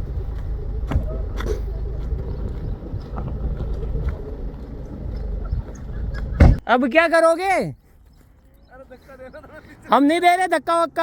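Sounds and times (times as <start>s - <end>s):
diesel engine running: 0.0s - 6.6s.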